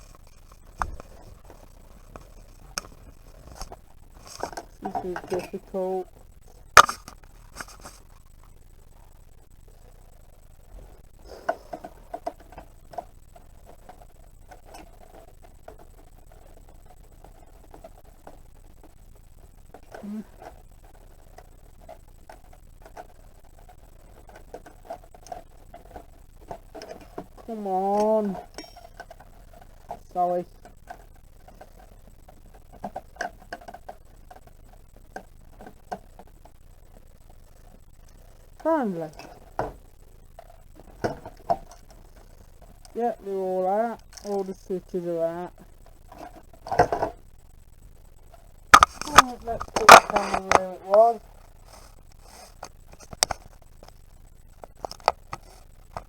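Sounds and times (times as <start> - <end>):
scraping: 0.0 - 8.2
small plastic parts clicking: 0.0 - 8.2, 48.7 - 56.0
plastic parts clicking: 6.7 - 8.0, 48.7 - 51.0, 54.6 - 56.0.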